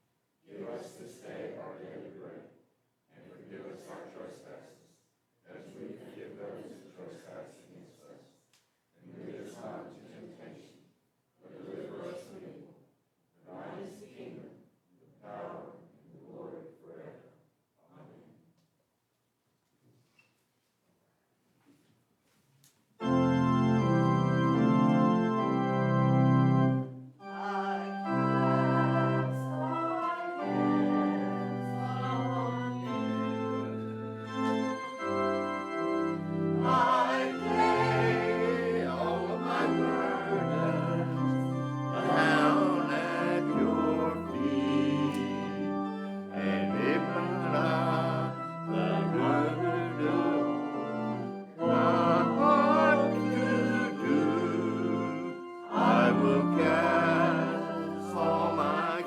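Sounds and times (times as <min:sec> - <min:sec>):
voices singing: 0:00.5 - 0:02.5, 0:03.2 - 0:08.3, 0:09.0 - 0:10.7, 0:11.5 - 0:12.6, 0:13.4 - 0:14.6, 0:15.2 - 0:17.3, 0:27.2 - 0:59.0
church organ playing chords: 0:23.0 - 0:59.0.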